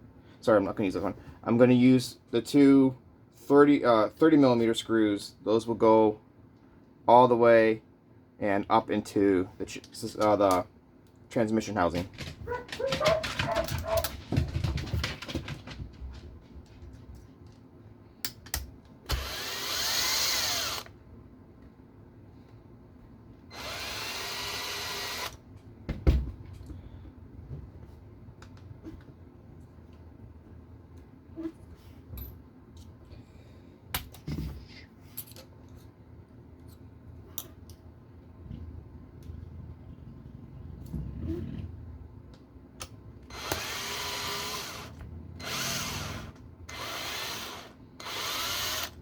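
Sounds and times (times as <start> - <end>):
electric screwdriver whirring: 19.1 - 20.9, 23.5 - 25.4, 43.3 - 49.0.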